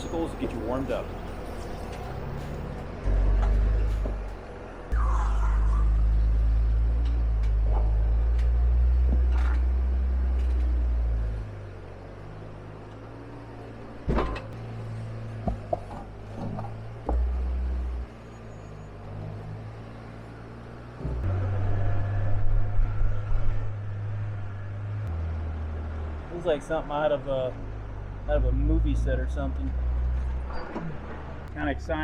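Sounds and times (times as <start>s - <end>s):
vehicle engine rumble: 0.0s - 32.0s
tires knocking on rock: 15.4s - 17.3s.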